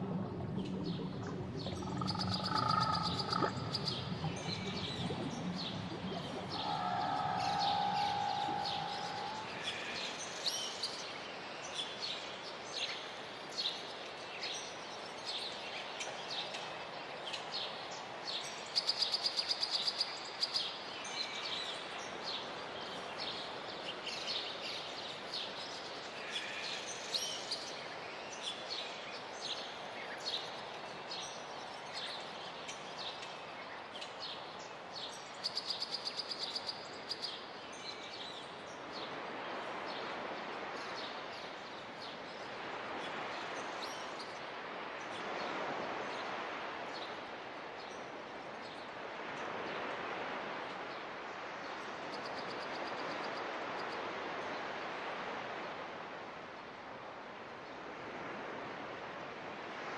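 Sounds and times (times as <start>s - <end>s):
birds chirping: 0.8s - 9.9s.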